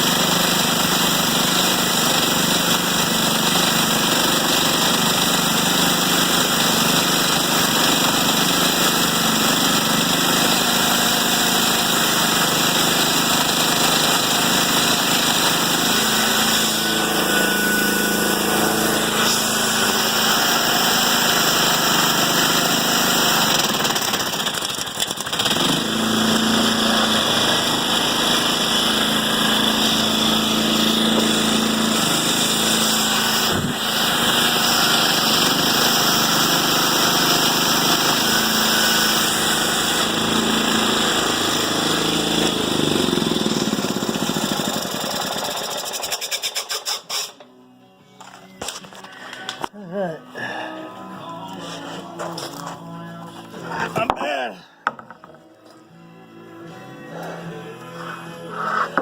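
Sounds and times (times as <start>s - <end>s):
chainsaw mill engine running: 0.0s - 46.9s.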